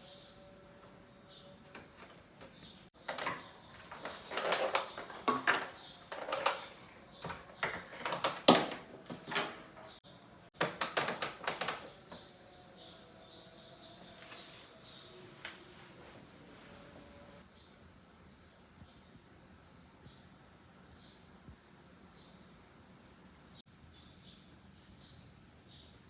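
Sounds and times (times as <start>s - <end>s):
handling clicks knocks and scrapes: 1.8s - 10.0s.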